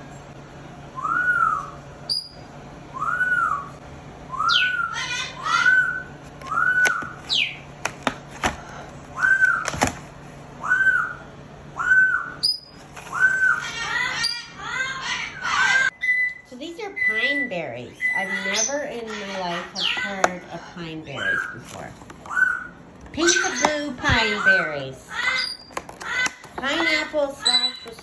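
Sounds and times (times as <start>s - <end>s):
parrot whistling: 1.0s - 7.6s, 9.2s - 9.7s, 10.6s - 20.0s, 22.3s - 25.8s, 26.8s - 28.0s
parrot squealing: 4.5s - 7.6s, 10.6s - 20.2s, 21.0s - 21.6s, 22.3s - 28.0s.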